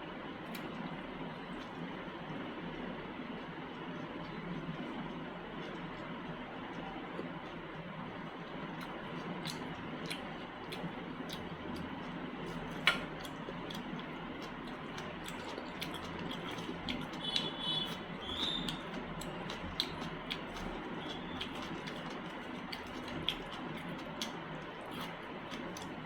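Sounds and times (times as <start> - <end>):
wet chewing smacks: 0.5 - 2.0, 8.3 - 26.0.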